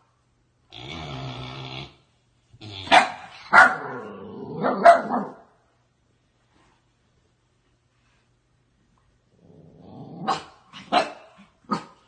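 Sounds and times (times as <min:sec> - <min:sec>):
dog growling: 0:00.7 - 0:02.0, 0:02.6 - 0:03.0, 0:03.8 - 0:04.8, 0:09.3 - 0:10.9
dog barking: 0:02.9 - 0:05.5, 0:10.2 - 0:12.0.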